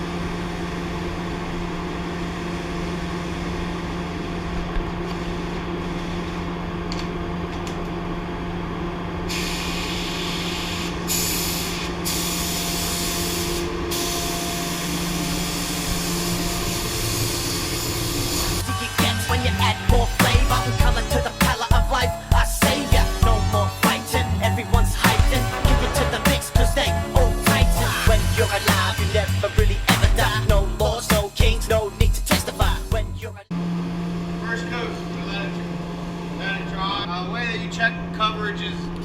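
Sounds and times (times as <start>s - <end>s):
steady low hum: 0.0s - 39.0s
paint spray gun hissing: 9.3s - 19.2s.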